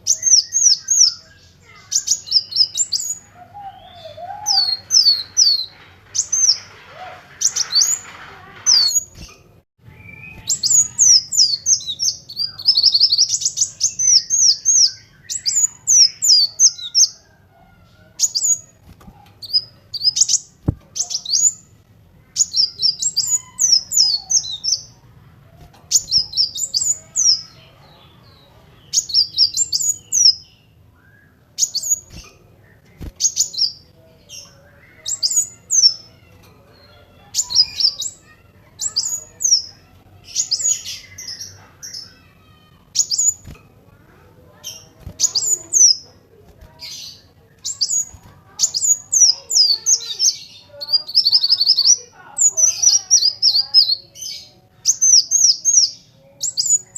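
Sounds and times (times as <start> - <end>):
sunbird chirping: 0.0 - 17.4.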